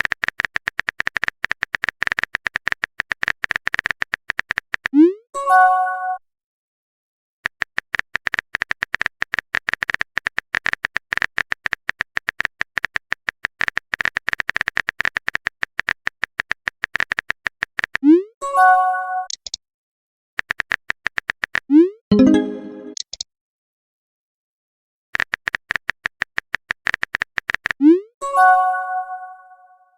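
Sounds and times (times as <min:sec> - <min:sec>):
phone keyboard typing clicks: 0:00.0 - 0:04.9, 0:07.5 - 0:18.0, 0:20.4 - 0:23.2, 0:25.2 - 0:27.8
message chime: 0:22.1 - 0:23.0.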